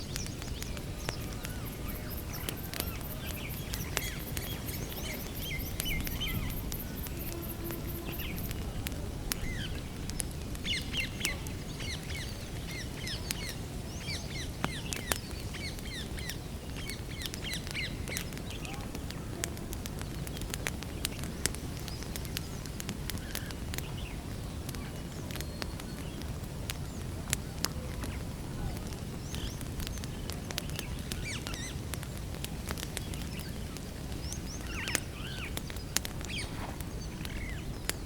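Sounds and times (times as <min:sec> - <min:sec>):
small bird chirping: 0:00.0 - 0:08.6
campfire crackling and popping: 0:00.0 - 0:38.0.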